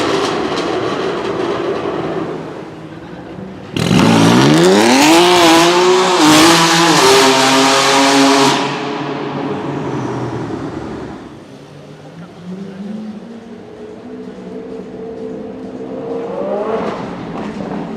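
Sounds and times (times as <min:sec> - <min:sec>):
car engine revving hard: 0:03.7 - 0:09.6.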